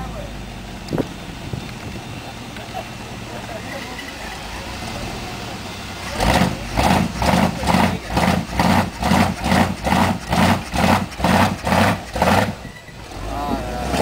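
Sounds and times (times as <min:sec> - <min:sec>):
monster truck engine running: 0:00.0 - 0:14.0
loud regular pulsing: 0:03.0 - 0:14.0.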